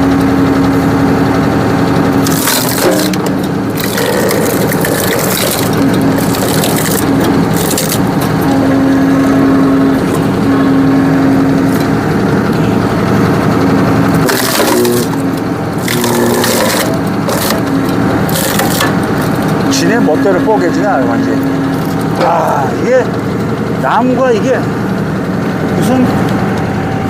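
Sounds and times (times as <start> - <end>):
tractor and hydraulics droning: 0.0 - 27.0
wood cracking and splintering: 2.2 - 8.4, 14.2 - 19.8.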